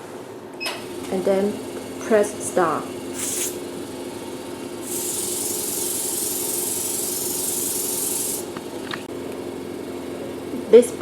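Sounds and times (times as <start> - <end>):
machine humming: 0.0 - 11.0
water mist spray hissing: 3.1 - 3.6, 4.8 - 8.5.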